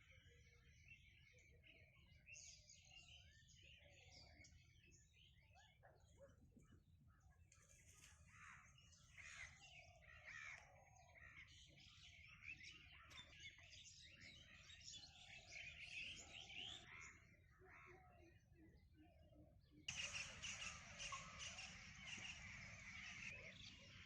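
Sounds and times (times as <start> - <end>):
birds chirping and calling: 7.6 - 24.0.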